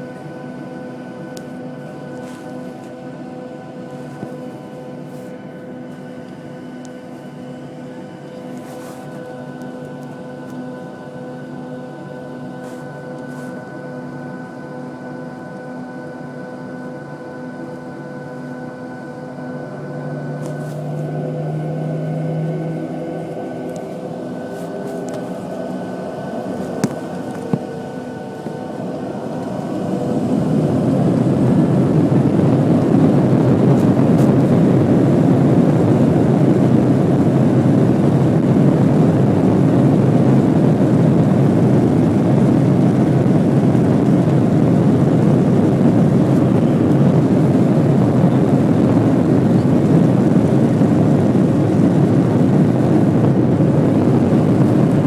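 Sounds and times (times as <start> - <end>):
jet engines spooling up: 17.6 - 55.0.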